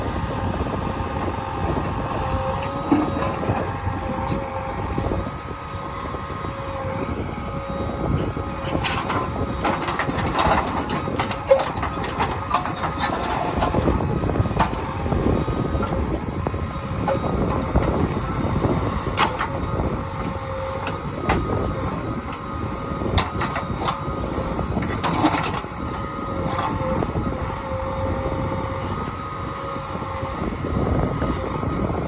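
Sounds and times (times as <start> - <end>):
diesel engine running under load: 0.0 - 32.0.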